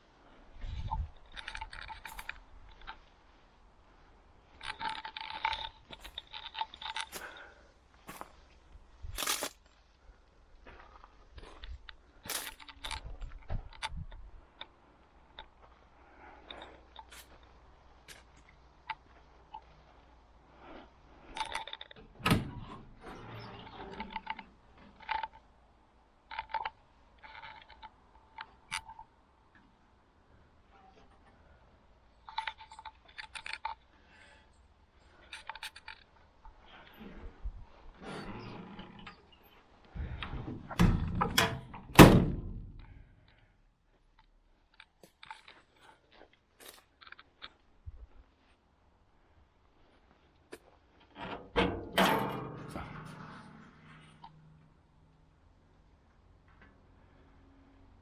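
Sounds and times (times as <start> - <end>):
heavy metal thunks and clunks: 40.0 - 43.1, 51.2 - 53.6.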